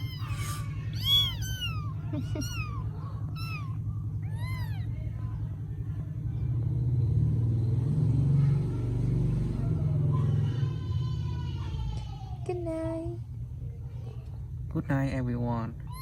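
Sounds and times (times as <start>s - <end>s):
kittens mewing: 0.0s - 5.3s, 15.8s - 16.0s
steady low hum: 0.0s - 16.0s.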